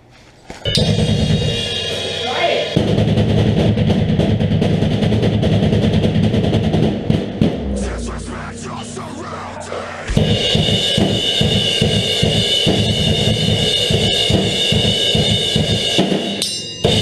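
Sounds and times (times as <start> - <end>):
cymbals: 0.6 - 17.0.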